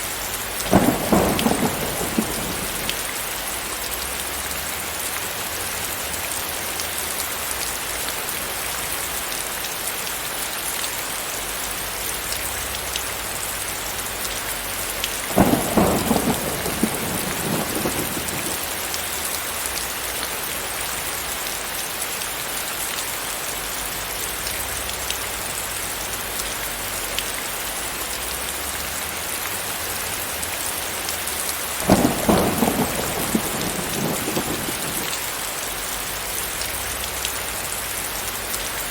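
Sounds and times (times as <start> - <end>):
steady rain falling: 0.0 - 38.9
thunder claps: 0.6 - 3.2, 15.2 - 19.0, 31.8 - 35.3.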